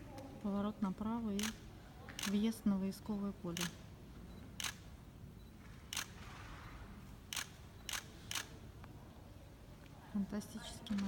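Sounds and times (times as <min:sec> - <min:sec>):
camera shutter clicking: 0:01.4 - 0:01.6, 0:02.2 - 0:02.4, 0:03.5 - 0:03.8, 0:04.6 - 0:04.8, 0:05.9 - 0:06.2, 0:07.3 - 0:08.6.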